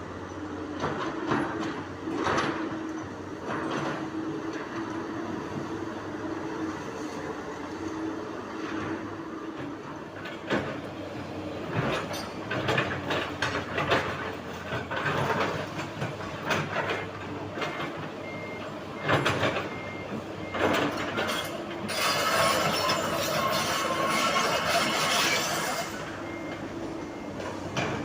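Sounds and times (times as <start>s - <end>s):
heavy machinery scraping: 10.3s - 28.0s
reversing alarm beeping: 17.7s - 28.0s.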